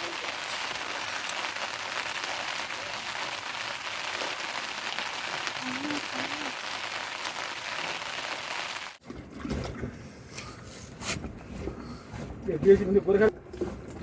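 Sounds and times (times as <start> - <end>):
rain falling steadily: 0.0 - 9.0.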